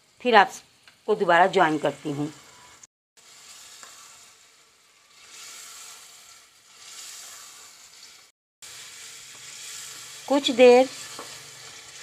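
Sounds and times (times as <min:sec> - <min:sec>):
meat sizzling in a pan: 0:00.0 - 0:12.0
spatula stirring in a pan: 0:02.4 - 0:12.0.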